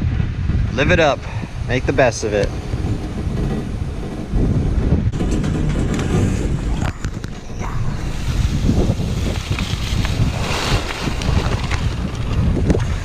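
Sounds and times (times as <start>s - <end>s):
steady rumble: 0.0s - 13.0s
wind buffeting microphone: 0.0s - 13.0s
skis hissing on snow: 8.0s - 11.6s.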